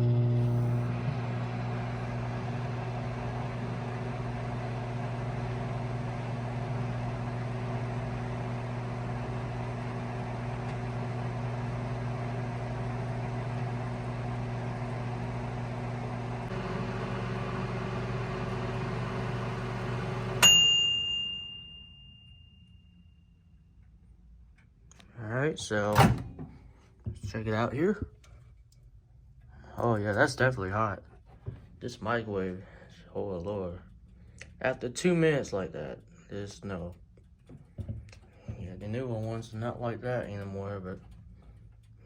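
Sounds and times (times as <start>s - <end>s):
microwave oven humming: 0.0s - 23.6s
microwave timer bell ding: 20.3s - 23.1s.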